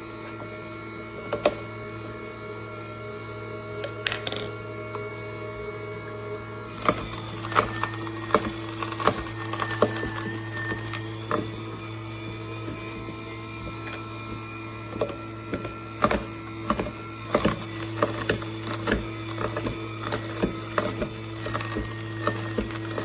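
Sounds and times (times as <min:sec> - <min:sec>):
juicer motor hum: 0:00.0 - 0:23.0
produce cracking and snapping: 0:06.7 - 0:12.8, 0:15.0 - 0:23.0.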